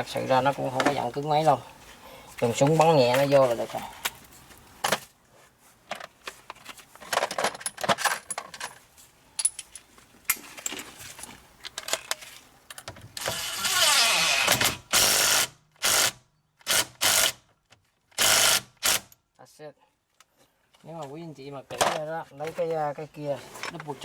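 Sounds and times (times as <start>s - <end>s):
parts and tools clicking and rattling: 5.9s - 13.4s.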